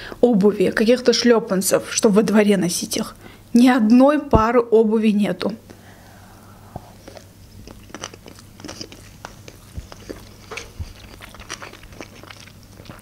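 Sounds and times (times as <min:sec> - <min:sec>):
chewing with wet mouth clicks: 0:07.0 - 0:13.0.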